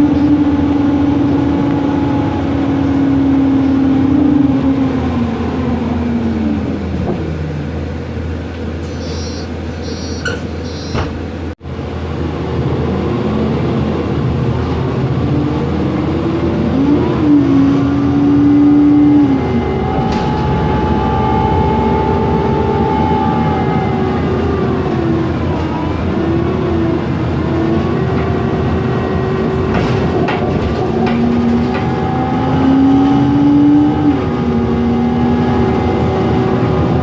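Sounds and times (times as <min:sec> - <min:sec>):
bus engine running: 0:00.0 - 0:37.0
road noise: 0:00.0 - 0:37.0
cooling fan: 0:11.7 - 0:37.0.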